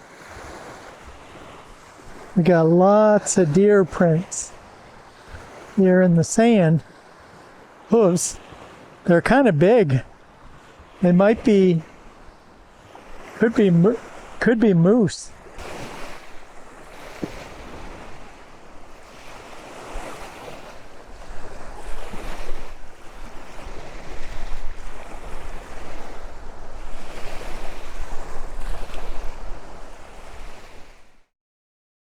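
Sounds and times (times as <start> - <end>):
waves washing onto beach: 0.0 - 31.3
wind buffeting microphone: 15.4 - 30.9.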